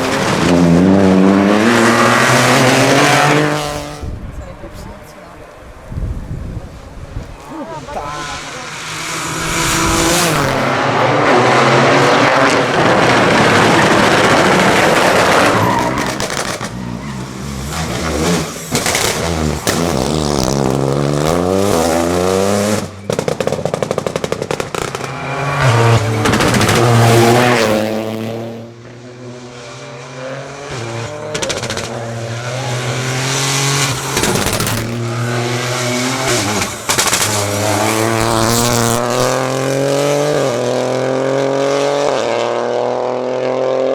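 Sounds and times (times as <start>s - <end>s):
rally car engine revving: 0.0s - 4.2s, 7.5s - 43.9s
tyre squeal: 15.1s - 19.7s.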